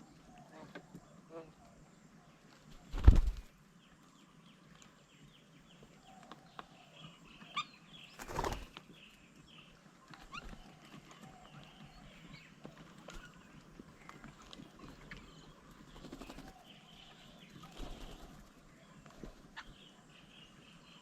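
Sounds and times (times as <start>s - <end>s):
small birds chirping: 0.0s - 21.0s
bird wings flapping: 2.7s - 3.5s, 8.2s - 8.8s, 15.9s - 16.6s, 17.6s - 19.4s.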